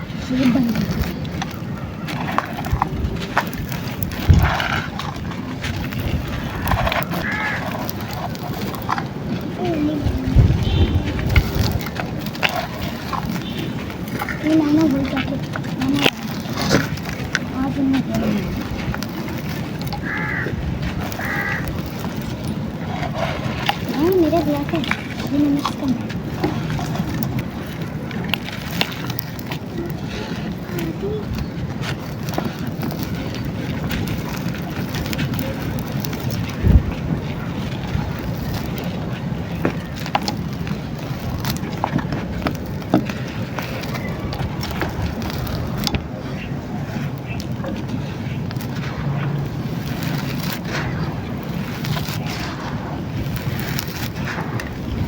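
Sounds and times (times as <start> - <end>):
dry chunks being crushed: 0.0 - 55.0
low rumble: 2.2 - 28.2
crow cawing: 7.2 - 7.8, 20.0 - 20.6, 21.2 - 21.7.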